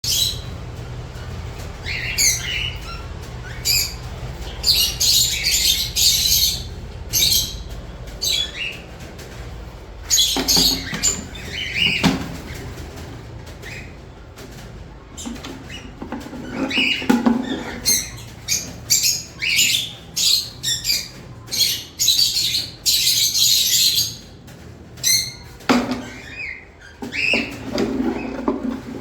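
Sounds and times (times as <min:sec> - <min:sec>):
parrots chirping: 0:00.0 - 0:14.0, 0:15.1 - 0:24.4, 0:25.0 - 0:28.9
low steady hum: 0:00.0 - 0:21.5.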